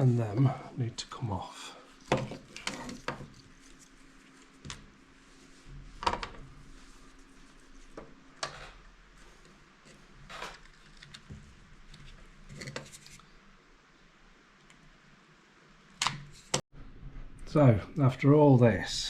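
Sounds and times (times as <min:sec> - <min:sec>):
hands working on wiring: 0:01.9 - 0:13.2.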